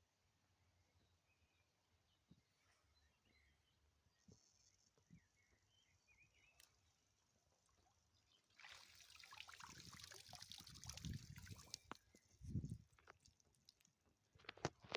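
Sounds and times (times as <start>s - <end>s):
water splashing and trickling: 8.5s - 14.1s.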